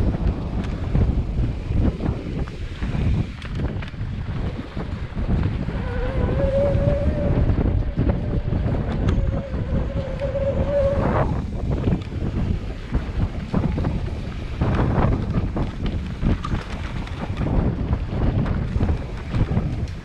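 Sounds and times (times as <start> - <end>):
steady rumble: 0.0 - 20.0
wind buffeting microphone: 0.0 - 20.0
steady whining tone: 5.2 - 12.1.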